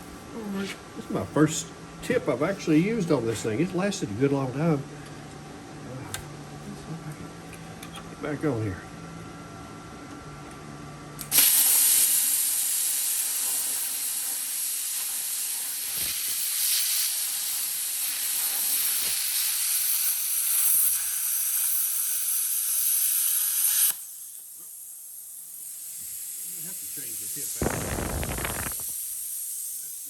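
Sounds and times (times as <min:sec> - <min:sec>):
plasma cutter hissing: 0:11.3 - 0:30.0.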